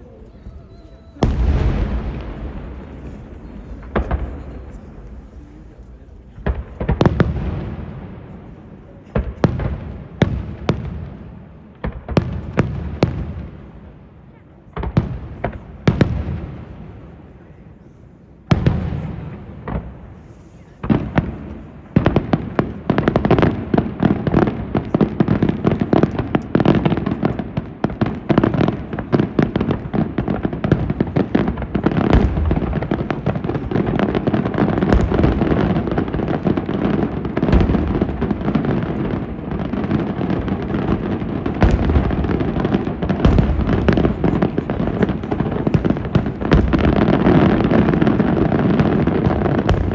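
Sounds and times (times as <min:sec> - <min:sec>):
fireworks crackling: 0:00.0 - 0:14.0, 0:18.4 - 0:49.9
fireworks exploding: 0:00.0 - 0:49.9.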